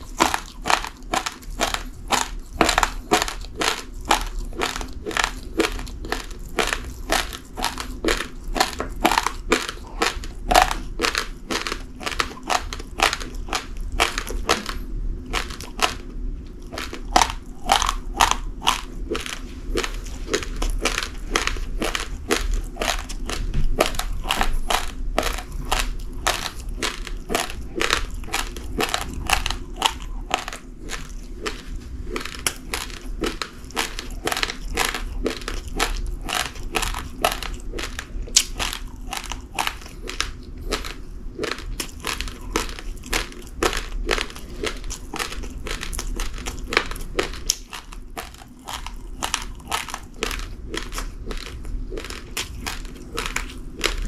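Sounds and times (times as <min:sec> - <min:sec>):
crunching uncooked rice: 0:00.0 - 0:54.0.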